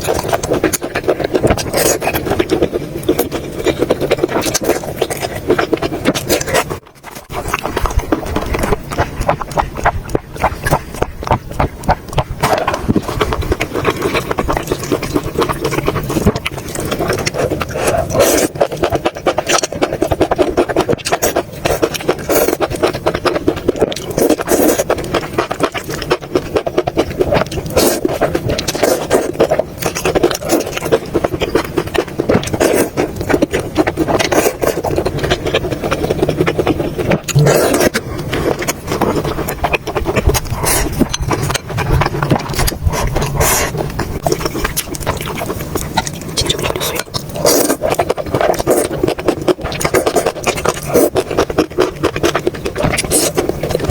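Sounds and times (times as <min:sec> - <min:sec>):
chewing and mouth sounds: 0:00.0 - 0:53.9.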